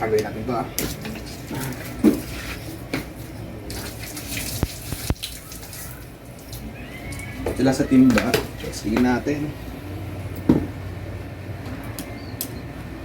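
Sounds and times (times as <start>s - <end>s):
water splashing from a hose: 3.6s - 7.3s.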